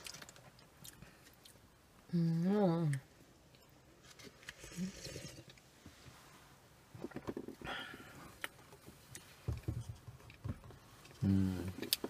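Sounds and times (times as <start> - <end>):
chewing with wet clicks: 0.0 - 1.6
sip of coffee: 4.5 - 5.6.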